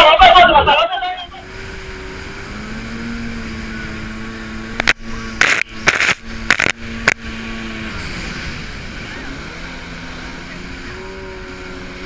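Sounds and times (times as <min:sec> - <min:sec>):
boat engine droning: 0:00.0 - 0:12.0
short rushes of noise: 0:04.8 - 0:07.2.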